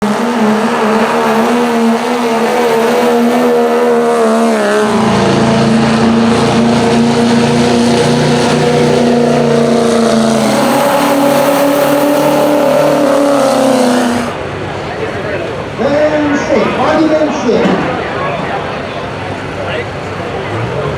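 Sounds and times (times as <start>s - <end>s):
diesel truck engine under load: 0.0s - 15.7s.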